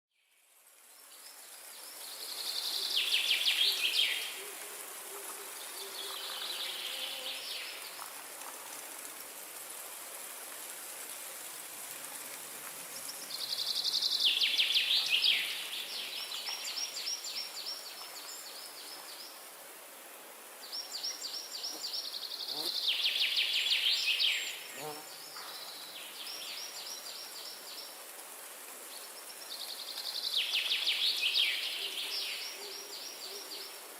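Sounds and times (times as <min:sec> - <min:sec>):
forest ambience hiss: 0:00.2 - 0:33.9.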